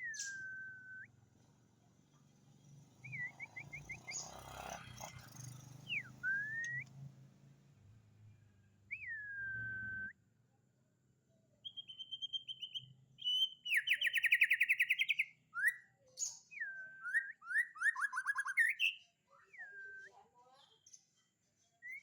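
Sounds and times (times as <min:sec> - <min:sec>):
songbird whistling and trilling: 0:00.0 - 0:01.2, 0:03.0 - 0:04.4, 0:05.8 - 0:06.9, 0:08.9 - 0:10.2, 0:11.6 - 0:20.2, 0:21.8 - 0:22.0.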